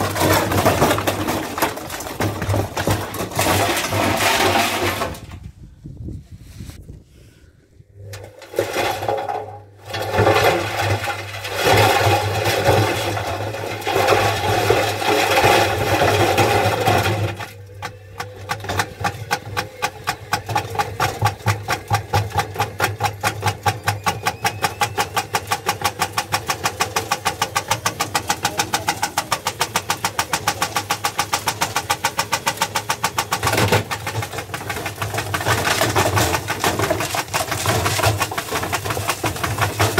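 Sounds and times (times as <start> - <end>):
washing machine rattling: 0.0 - 5.2, 8.3 - 39.9.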